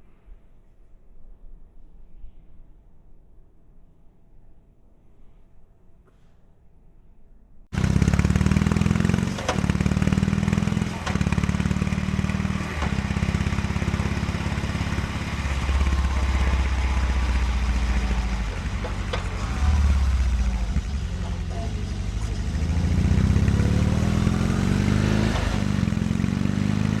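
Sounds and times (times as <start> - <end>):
motorcycle engine running: 7.8 - 27.0.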